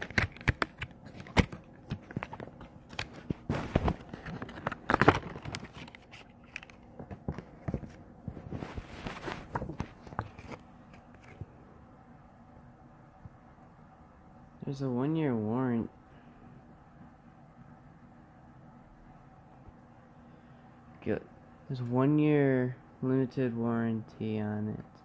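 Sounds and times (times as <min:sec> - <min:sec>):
packaging rustling and crinkling: 0:00.0 - 0:11.4.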